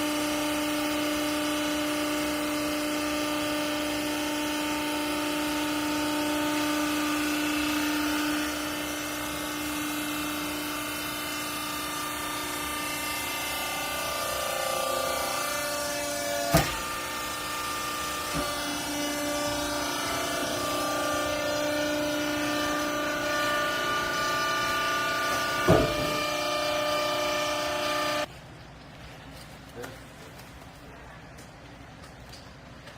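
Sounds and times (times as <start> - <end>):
baler machine hum: 2.2 - 28.3.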